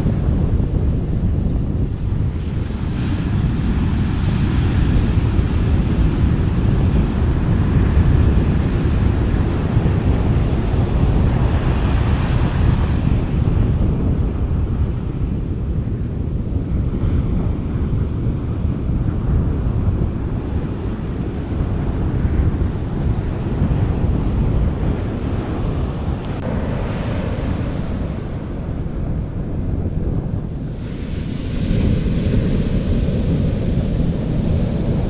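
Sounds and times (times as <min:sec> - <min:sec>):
sea waves washing onto beach: 0:00.0 - 0:35.0
wind buffeting microphone: 0:00.0 - 0:35.0.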